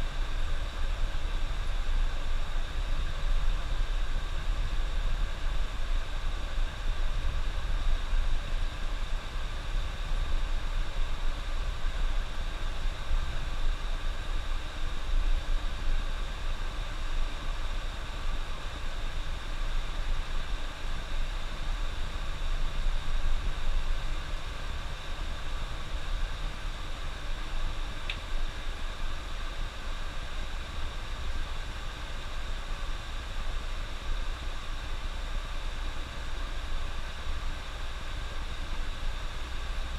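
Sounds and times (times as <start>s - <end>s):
constant hiss: 0.0s - 39.9s
faint tick: 28.0s - 28.2s.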